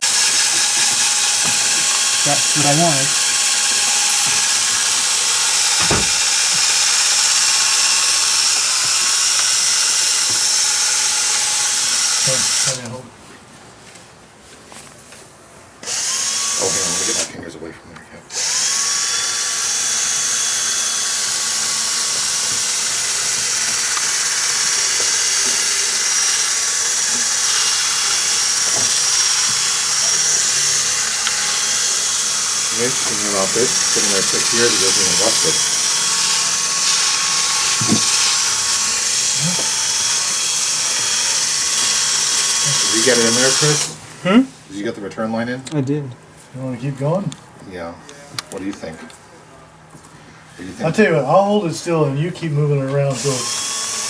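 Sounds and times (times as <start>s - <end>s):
cordless drill with wire wheel: 0.0s - 13.0s, 15.8s - 17.4s, 18.3s - 44.0s, 53.0s - 54.0s
short knock: 5.8s - 6.2s.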